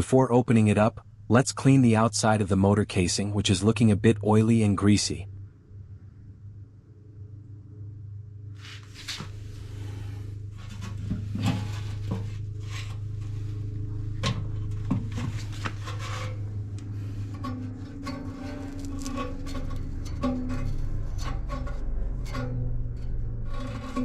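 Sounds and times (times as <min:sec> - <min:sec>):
steady low hum: 0:00.0 - 0:24.0
rubbing on metal casing: 0:08.6 - 0:24.0.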